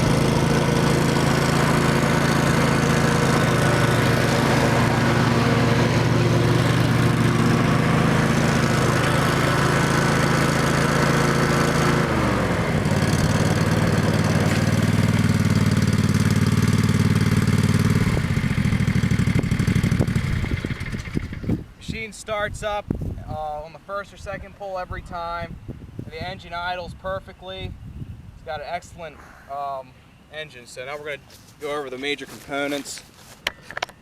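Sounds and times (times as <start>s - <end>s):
mower engine running: 0.0s - 21.7s.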